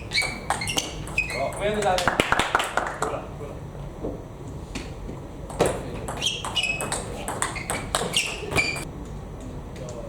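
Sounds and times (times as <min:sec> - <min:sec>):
short high squeaks: 0:00.0 - 0:01.6, 0:06.1 - 0:08.9.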